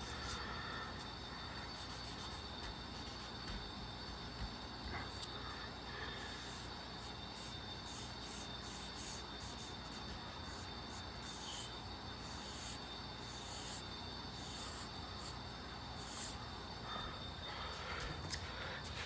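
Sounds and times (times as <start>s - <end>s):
pencil strokes scratching on paper: 0.0s - 19.0s.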